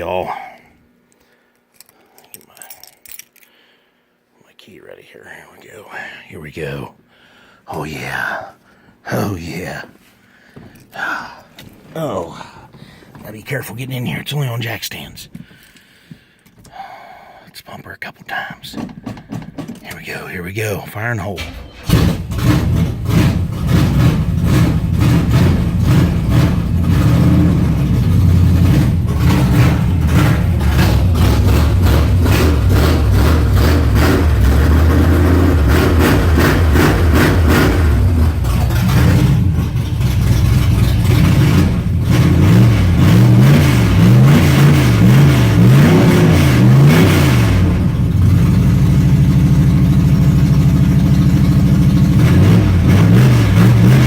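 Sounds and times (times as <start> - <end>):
car engine revving: 21.4 - 54.0.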